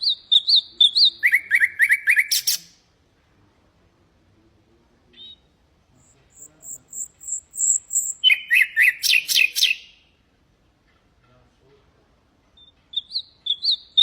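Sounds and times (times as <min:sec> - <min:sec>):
nightingale singing: 0:00.0 - 0:02.8, 0:05.1 - 0:10.2, 0:12.6 - 0:14.0.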